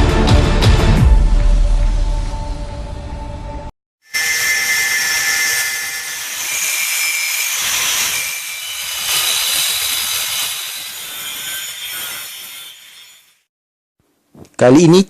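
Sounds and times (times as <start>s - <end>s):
angle grinder whining: 4.1s - 13.5s.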